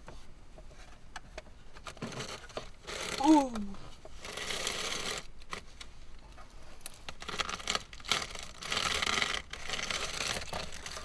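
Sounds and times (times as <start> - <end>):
air filter rustling and crinkling: 7.1 - 11.0.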